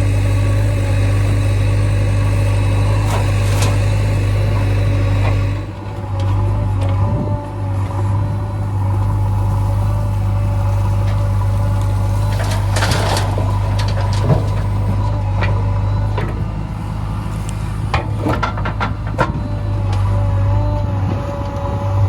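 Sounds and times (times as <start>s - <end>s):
diesel engine running: 0.0s - 22.0s
scraping and clanking: 12.2s - 16.5s, 17.8s - 20.1s.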